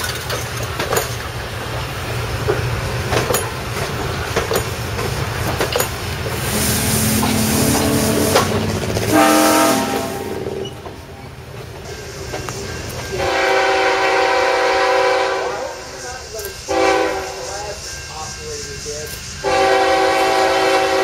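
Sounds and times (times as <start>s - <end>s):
low rumble of railroad cars: 0.0s - 21.0s
train wheels clicking over rail joints: 0.0s - 21.0s
train horn blast: 6.4s - 10.6s, 13.2s - 15.9s, 16.7s - 17.4s, 19.4s - 21.0s.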